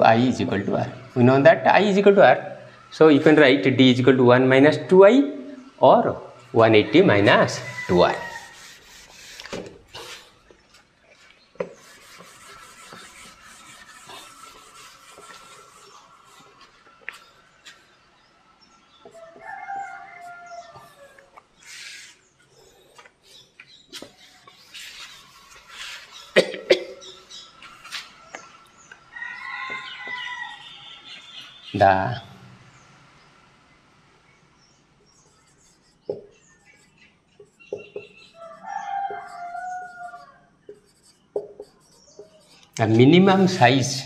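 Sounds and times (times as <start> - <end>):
marker writing on whiteboard: 11.6 - 17.8, 23.9 - 26.3, 35.2 - 43.6.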